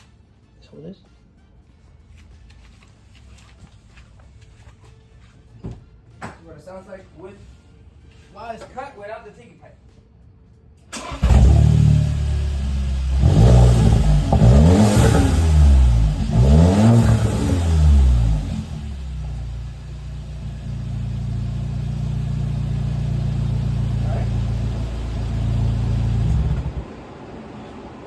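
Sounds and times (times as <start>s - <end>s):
car engine starting and revving: 10.9s - 27.4s
car engine idling: 11.0s - 27.0s.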